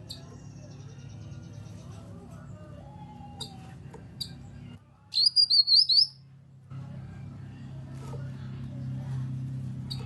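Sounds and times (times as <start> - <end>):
bird warbling chirps: 5.2 - 6.2.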